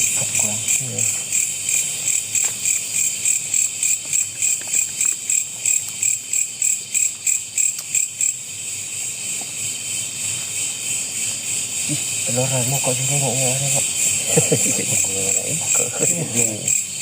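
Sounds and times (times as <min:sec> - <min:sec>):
high-pitched insect drone: 0:00.0 - 0:17.0
insects chirping rhythmically: 0:00.0 - 0:17.0.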